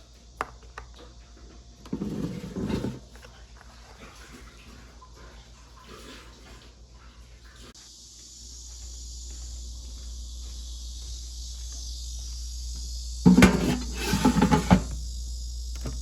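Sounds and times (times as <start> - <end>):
clatter of kitchen utensils: 13.3 - 15.0.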